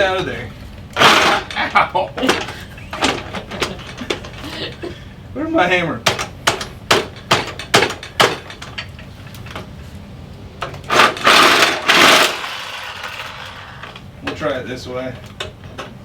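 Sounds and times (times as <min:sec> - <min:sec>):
loud noisy burst: 0:00.9 - 0:01.8, 0:10.9 - 0:14.0
hammer striking steel frame: 0:06.0 - 0:08.9.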